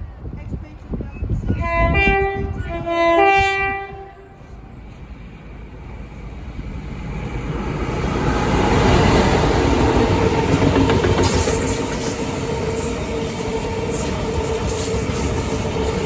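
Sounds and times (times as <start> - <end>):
train approaching with rail noise: 0.0 - 16.0
train horn: 1.5 - 4.7.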